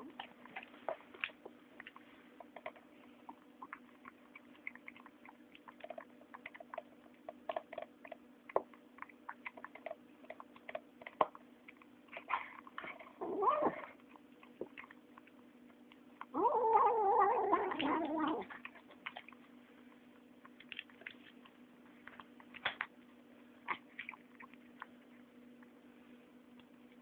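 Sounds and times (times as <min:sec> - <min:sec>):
kitten chewing clicks: 0:00.2 - 0:13.1, 0:17.7 - 0:19.6.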